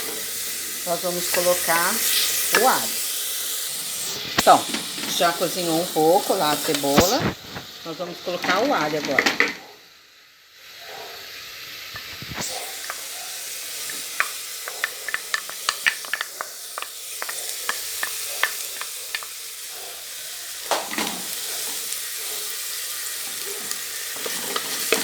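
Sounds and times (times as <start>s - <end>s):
onion sizzling in hot oil: 0.0s - 25.0s
utensil scraping a pan: 23.2s - 25.0s.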